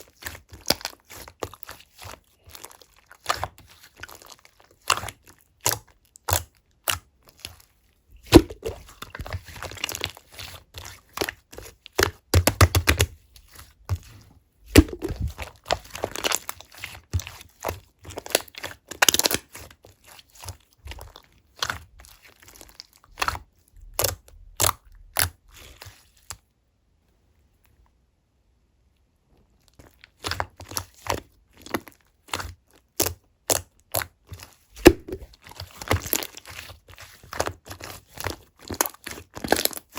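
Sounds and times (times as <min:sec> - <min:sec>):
slime popping and crackling: 0:08.2 - 0:10.2, 0:14.7 - 0:25.8, 0:30.1 - 0:39.9.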